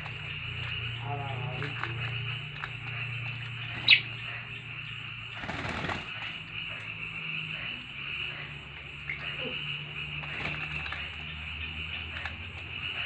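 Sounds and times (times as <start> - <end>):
bird falling chirp: 0.0 - 4.5
bird splashing and wing-flapping: 0.0 - 7.0, 9.2 - 13.0.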